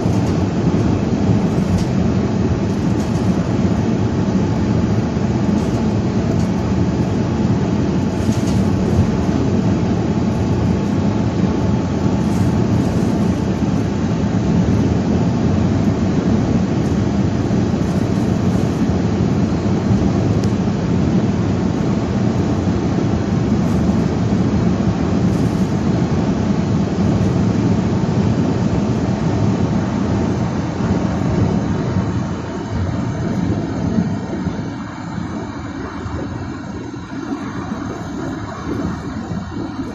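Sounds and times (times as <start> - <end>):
strong wind rushing: 0.0 - 39.9
vehicle low rumble: 0.0 - 39.9.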